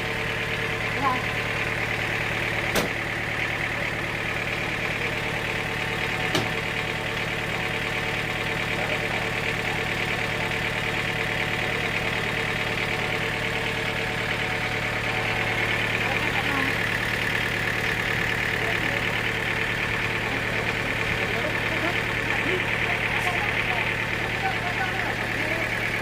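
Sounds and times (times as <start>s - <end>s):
sawmill engine humming: 0.0s - 26.0s
sharp knocks: 2.7s - 3.0s, 6.3s - 6.6s.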